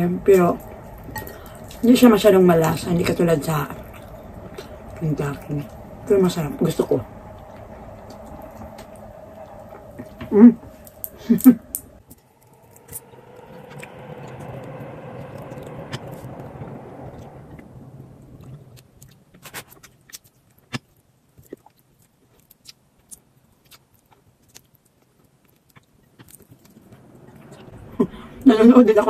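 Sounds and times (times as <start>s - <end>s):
rushing noise with low hum: 0.0s - 19.8s
chewing crispy chicken: 18.4s - 27.6s.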